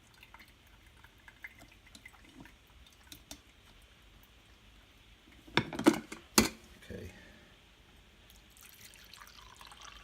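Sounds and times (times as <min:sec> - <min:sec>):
coffee dripping: 0:00.0 - 0:05.7, 0:08.3 - 0:10.0.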